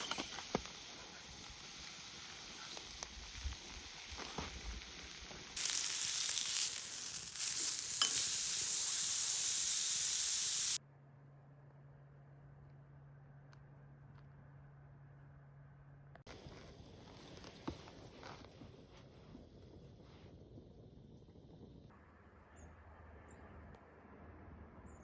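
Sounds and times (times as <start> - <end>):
fire crackles: 0.0 - 10.8, 16.3 - 21.9
food sizzling over fire: 0.0 - 10.8.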